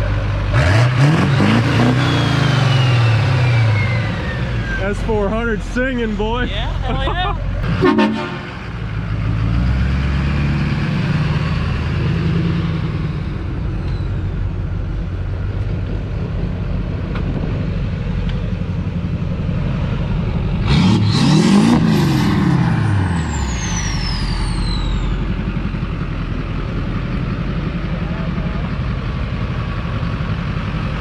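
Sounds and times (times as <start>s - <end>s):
diesel truck engine revving: 0.0s - 31.0s
high turbo whistle: 7.8s - 8.6s, 22.8s - 25.3s.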